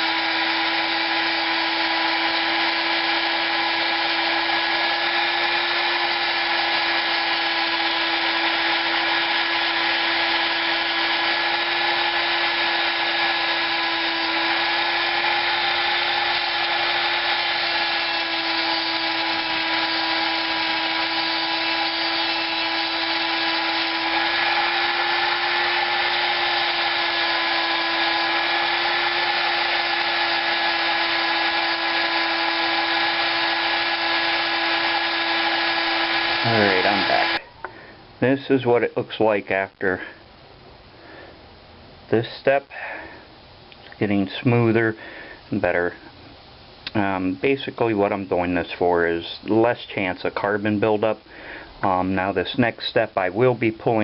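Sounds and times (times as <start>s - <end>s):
rotary tool whining: 0.0s - 37.7s.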